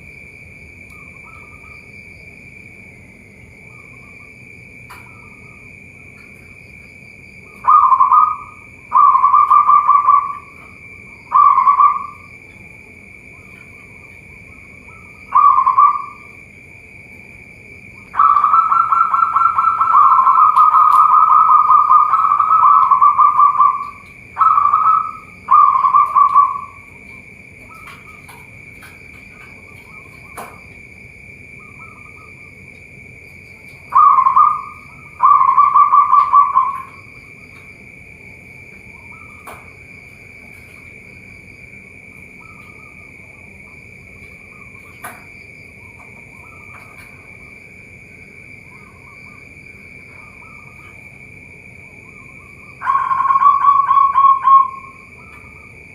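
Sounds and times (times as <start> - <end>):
dove cooing: 7.4 - 12.6, 13.2 - 16.4, 18.0 - 30.6, 33.4 - 37.7, 48.6 - 51.0, 51.9 - 55.7
high-pitched drone: 7.6 - 12.4, 14.6 - 16.4, 18.0 - 27.1, 33.9 - 37.2, 52.0 - 55.5.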